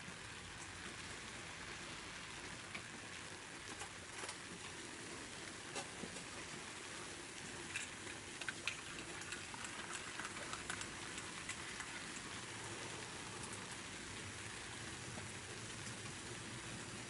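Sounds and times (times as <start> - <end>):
wood fire hissing and crackling: 0.0 - 17.0
fire pops: 7.4 - 12.3.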